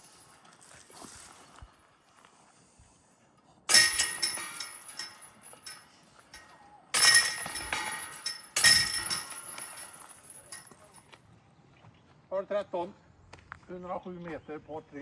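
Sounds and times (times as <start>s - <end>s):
discs jangling metal chains: 3.7s - 11.0s.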